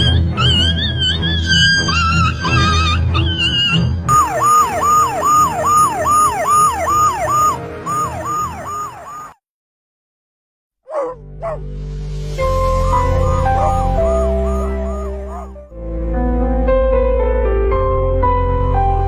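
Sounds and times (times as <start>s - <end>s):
emergency vehicle siren wailing: 4.1s - 9.4s, 12.8s - 15.6s
brief gliding tones: 13.0s - 15.5s.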